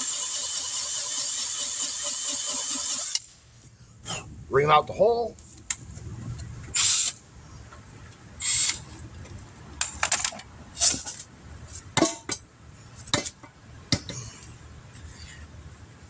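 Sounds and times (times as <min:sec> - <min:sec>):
reamer scraping in tire puncture: 0:00.0 - 0:03.2.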